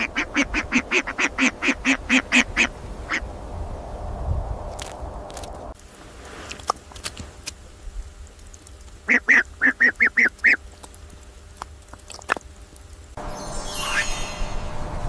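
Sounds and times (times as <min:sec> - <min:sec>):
duck quacking: 0:00.0 - 0:03.2, 0:09.1 - 0:10.6.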